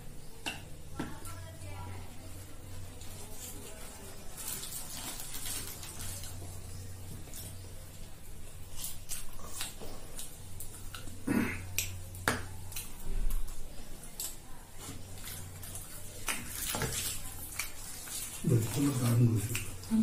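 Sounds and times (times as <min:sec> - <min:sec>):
chewing clicks and wet smacks: 0:08.6 - 0:20.0.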